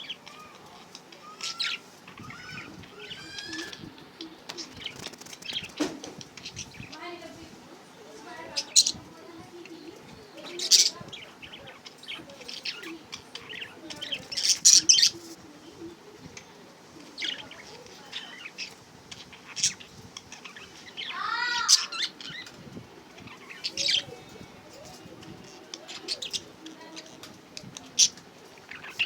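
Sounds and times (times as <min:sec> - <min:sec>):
budgerigars chirping and chattering: 0:00.0 - 0:07.3, 0:07.9 - 0:29.0.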